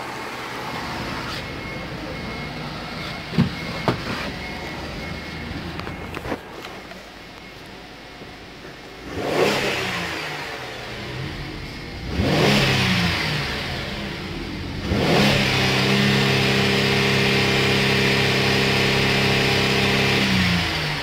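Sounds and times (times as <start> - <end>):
car engine revving: 8.6 - 21.0.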